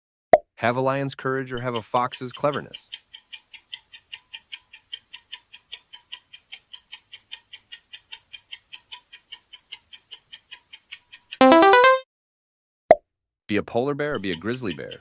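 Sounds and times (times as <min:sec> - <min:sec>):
rapid timer ticking: 0:01.6 - 0:12.0, 0:14.1 - 0:15.0.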